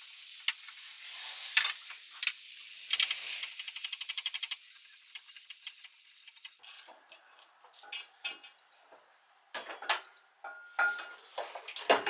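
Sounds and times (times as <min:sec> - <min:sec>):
ratchet wrench clicking: 0:00.0 - 0:06.6
metal tools clinking: 0:01.4 - 0:03.3.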